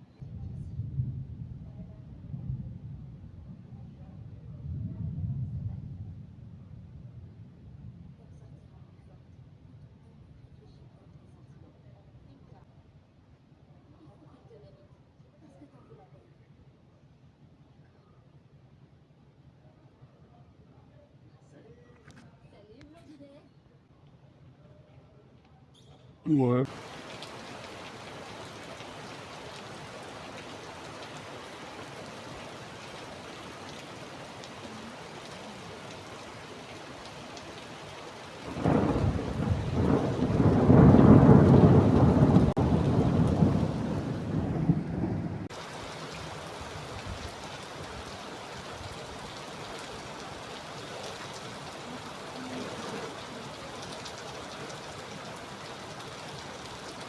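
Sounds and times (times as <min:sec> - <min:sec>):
thunder rumbling: 0:00.2 - 0:08.0, 0:26.7 - 0:49.4
steady rain falling: 0:26.3 - 0:57.0.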